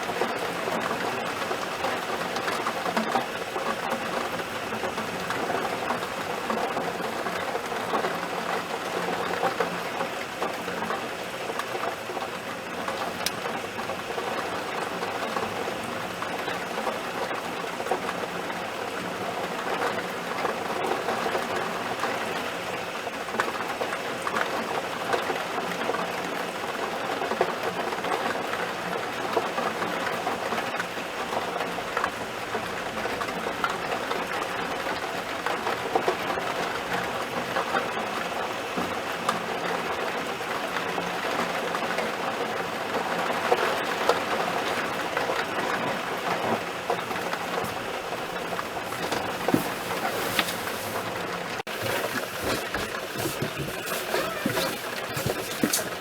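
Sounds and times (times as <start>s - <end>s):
heavy rain: 31.4s - 56.0s.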